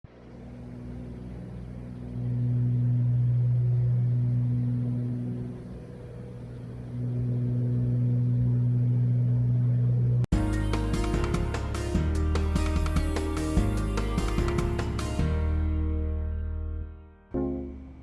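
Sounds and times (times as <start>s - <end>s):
propeller plane engines droning: 0.1s - 10.3s.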